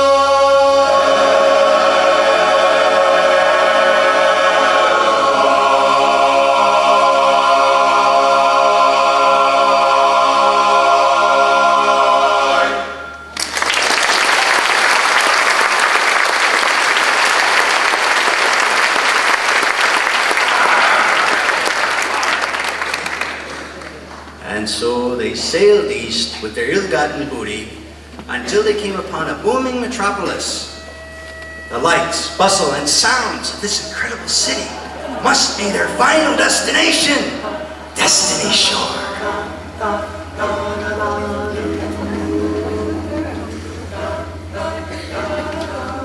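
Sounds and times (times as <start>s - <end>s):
barbershop chorus singing a cappella: 0.0s - 13.3s, 28.2s - 46.0s
audience applause: 13.3s - 24.3s.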